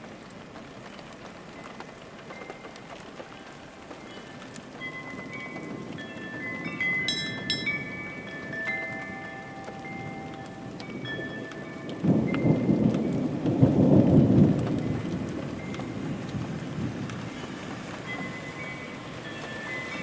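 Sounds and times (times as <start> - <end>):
steady rain: 0.0 - 20.0
thunderclap rumble: 4.5 - 20.0.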